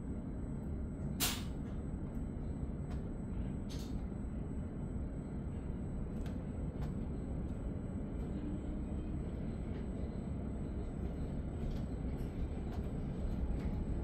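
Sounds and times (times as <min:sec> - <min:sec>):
train wheels rumbling on rails: 0:06.2 - 0:14.0.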